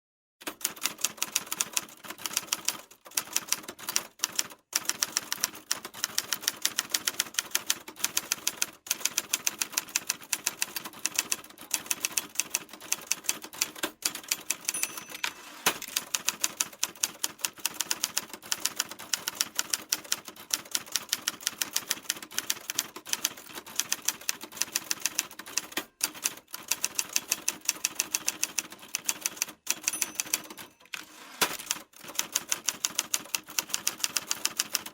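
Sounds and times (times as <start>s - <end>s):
typewriter keys clacking: 8.4s - 24.0s, 25.0s - 34.9s.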